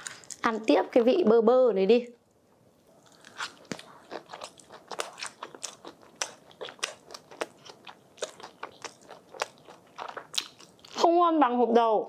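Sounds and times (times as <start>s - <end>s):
chewing crunchy snack: 3.0s - 11.1s.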